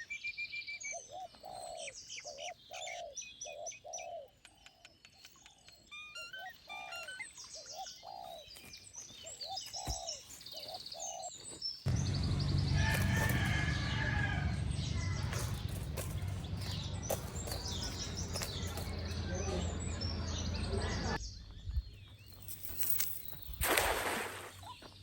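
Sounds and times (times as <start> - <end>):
birds calling: 0.0 - 25.0
high bird chirps: 14.8 - 25.0.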